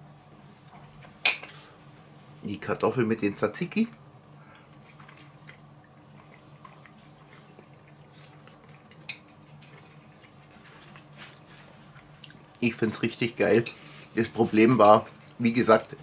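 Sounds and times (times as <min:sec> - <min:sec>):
low room hum: 0:00.0 - 0:16.0
chewing soft food: 0:04.2 - 0:16.0.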